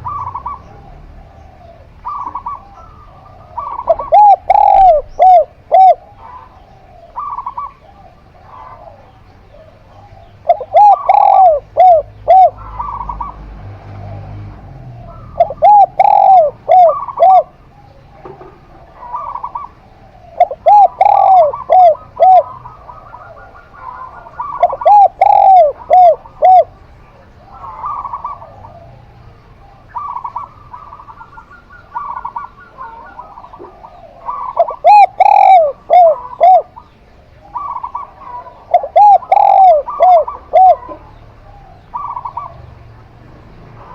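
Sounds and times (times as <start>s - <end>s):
doves cooing: 0.0s - 43.9s.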